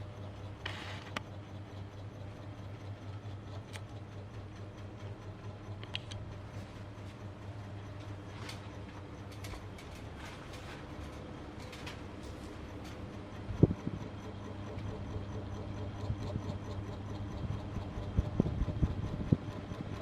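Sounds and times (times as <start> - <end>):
ceiling fan motor hum: 0.0 - 20.0.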